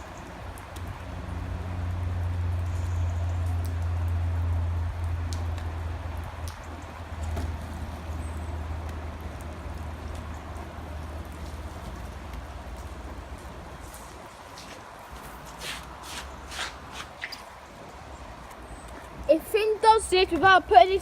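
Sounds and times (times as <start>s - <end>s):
rain falling: 0.0s - 21.0s
faint sharp clicks: 6.4s - 7.4s.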